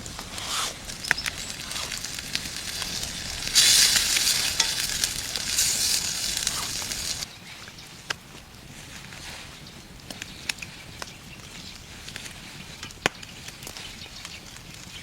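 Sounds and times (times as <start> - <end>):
food sizzling in a pan: 0.3 - 7.3.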